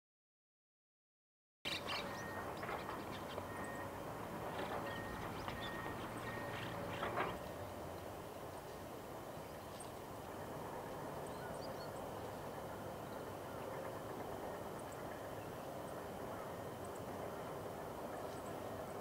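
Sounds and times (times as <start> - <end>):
small birds chirping: 1.7 - 3.9, 4.6 - 8.1.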